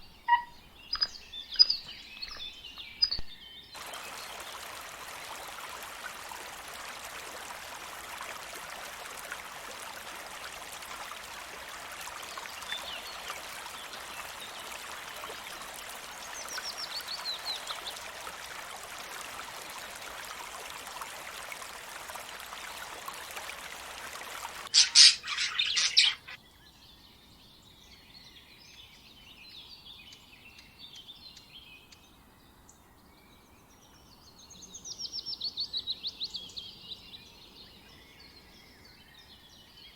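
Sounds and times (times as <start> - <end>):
small birds chirping: 0.0 - 7.1, 9.8 - 20.9, 21.5 - 26.4.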